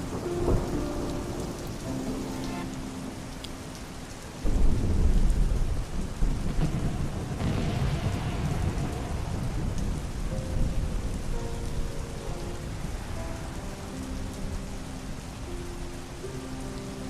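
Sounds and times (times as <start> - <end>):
steady rain: 0.0 - 17.0
thunderclap: 4.4 - 11.6
low rumble of thunder: 4.4 - 16.4.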